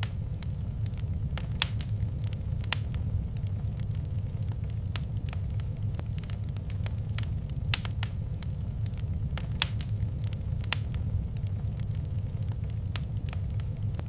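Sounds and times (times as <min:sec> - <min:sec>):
fire popping: 0:00.0 - 0:14.0
low steady rumble: 0:00.0 - 0:14.0
wood fire crackling: 0:00.0 - 0:14.0.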